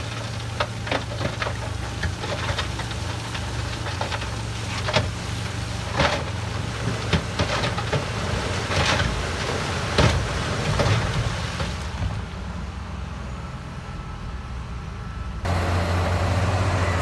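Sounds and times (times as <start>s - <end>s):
heavy diesel engine running: 15.4s - 17.0s.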